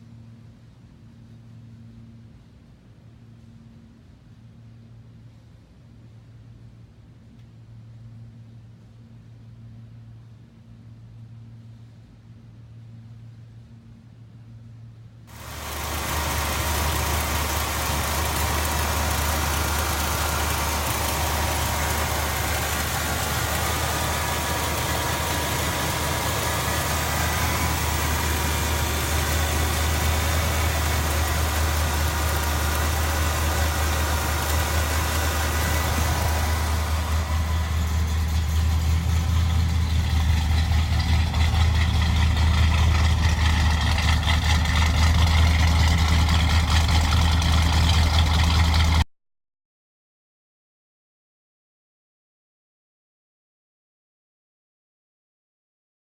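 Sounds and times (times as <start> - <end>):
car engine idling: 15.3 - 49.0.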